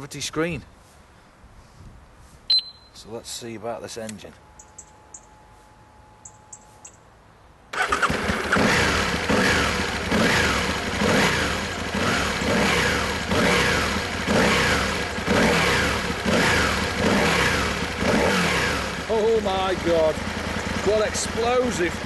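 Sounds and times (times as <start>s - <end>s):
motorcycle engine revving: 7.8s - 22.0s.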